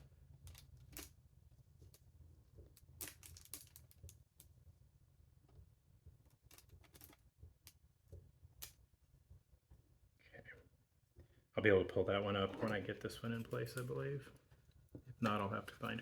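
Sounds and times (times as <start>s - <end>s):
low room hum: 0.0s - 16.0s
wooden pieces clicking and tapping: 2.6s - 4.5s.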